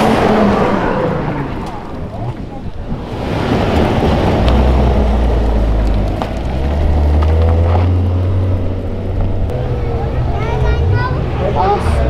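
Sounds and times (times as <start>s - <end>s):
car engine driving past: 3.1s - 12.0s.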